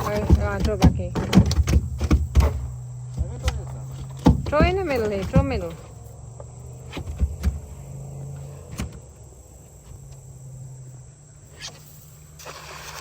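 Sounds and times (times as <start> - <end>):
cast net knocks and clatters: 0.0 - 6.0
steady low hum: 0.0 - 12.4.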